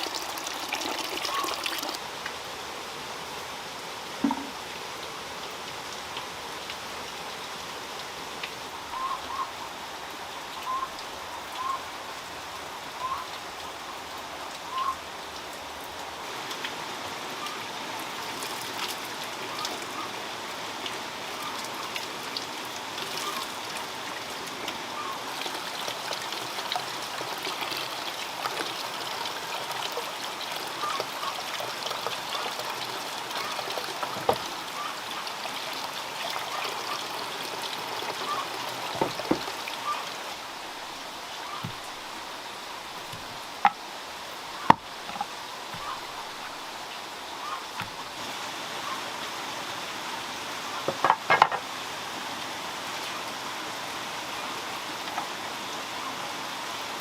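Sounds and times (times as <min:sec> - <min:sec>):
running water: 0:00.0 - 0:57.0.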